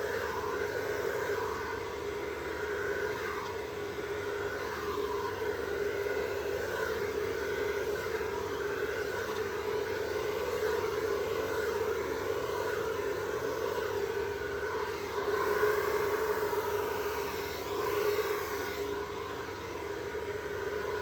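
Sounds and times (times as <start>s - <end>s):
electric blower whirring: 0.0s - 21.0s.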